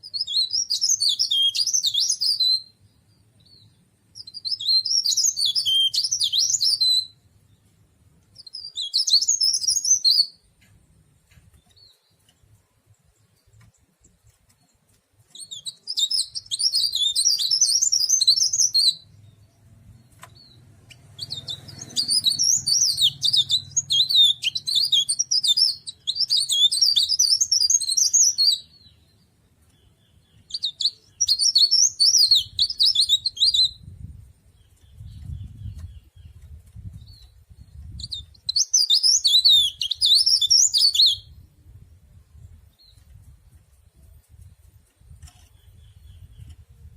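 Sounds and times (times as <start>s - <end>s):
warbler high twittering song: 0.0s - 46.9s.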